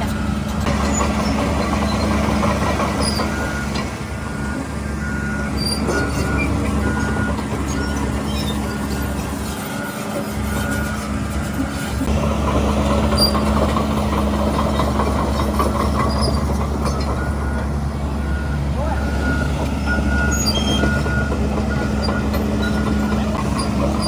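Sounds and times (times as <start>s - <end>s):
bulldozer diesel engine running: 0.0s - 24.0s
steel tracks clanking and squeaking: 0.0s - 24.0s.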